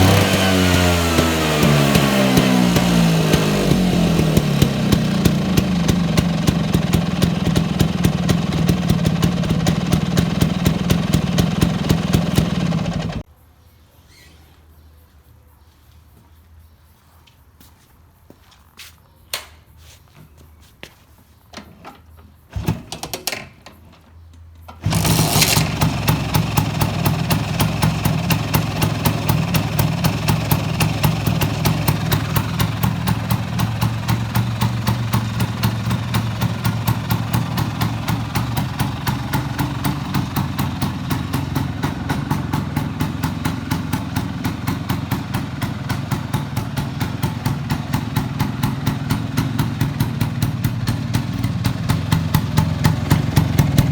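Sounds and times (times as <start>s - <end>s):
scooter engine idling: 0.0s - 13.3s, 24.8s - 53.9s
scuffing noise: 14.1s - 21.5s.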